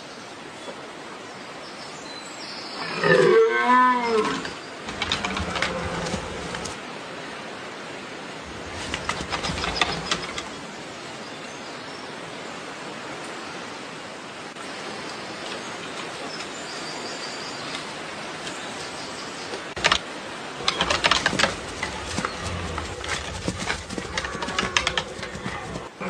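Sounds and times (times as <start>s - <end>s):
outdoor background noise: 0.0s - 26.0s
clicks and rustles: 4.4s - 6.8s, 8.5s - 10.6s, 19.8s - 25.9s.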